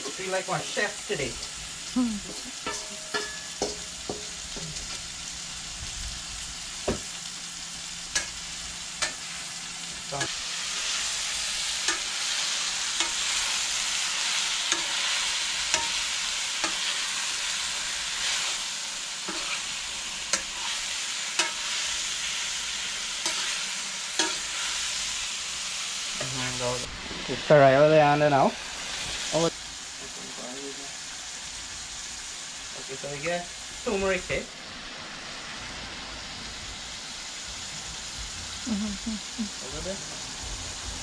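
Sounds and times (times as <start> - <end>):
vegetables sizzling in a pan: 0.0 - 41.0
spatula scraping and knocking pan: 2.3 - 5.0, 15.7 - 16.0, 19.2 - 19.6.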